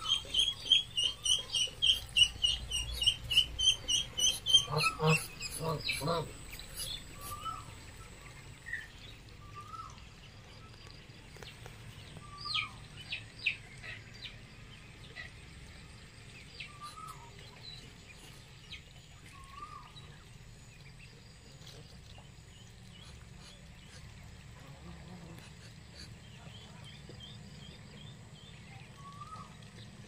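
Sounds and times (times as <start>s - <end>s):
birds calling: 0.0s - 10.0s
low background hum: 0.0s - 30.0s.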